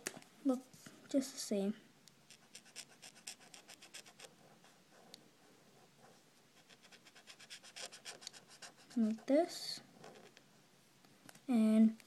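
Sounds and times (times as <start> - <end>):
colouring tool scribbling on paper: 2.3 - 4.4, 6.6 - 9.3.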